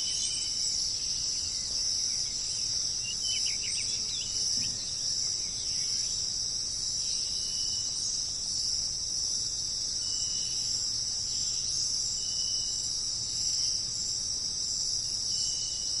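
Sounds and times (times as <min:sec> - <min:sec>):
insect chorus: 0:00.0 - 0:16.0.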